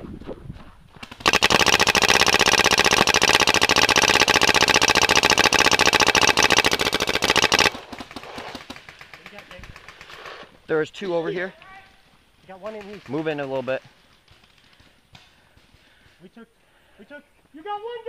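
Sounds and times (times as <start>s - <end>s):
paintball marker rapid firing: 1.0s - 10.2s.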